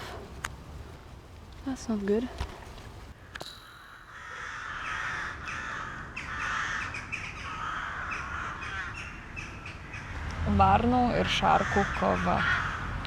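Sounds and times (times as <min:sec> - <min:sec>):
crows and magpies cawing: 0:04.0 - 0:10.4, 0:11.2 - 0:13.0.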